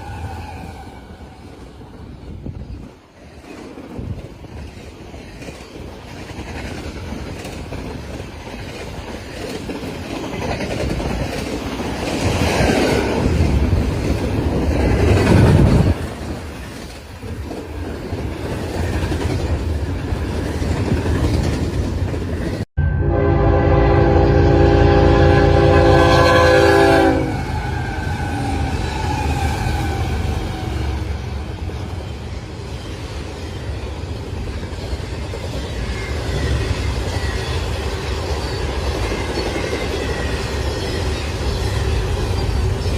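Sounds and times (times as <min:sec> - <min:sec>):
train rumble and wheel clatter: 0:00.0 - 0:23.0, 0:23.6 - 0:42.9
train horn: 0:22.8 - 0:30.0.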